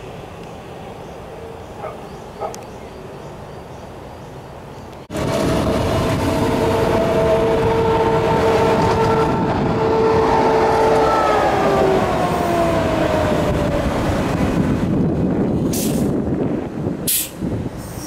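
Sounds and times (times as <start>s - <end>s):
train wheels rumbling on rails: 4.9s - 18.0s.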